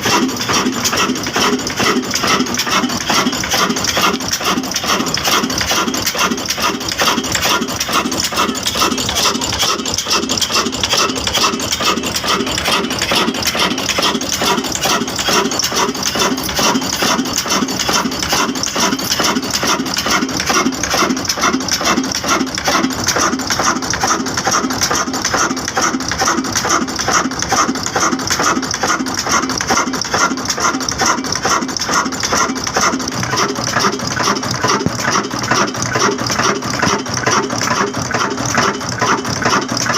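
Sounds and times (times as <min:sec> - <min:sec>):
diesel engine clattering: 0:00.0 - 0:39.9.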